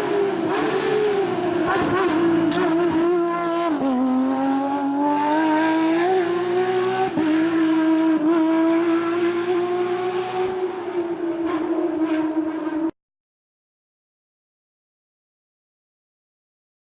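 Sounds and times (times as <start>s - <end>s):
racing car engine at high revs: 0.0s - 12.9s.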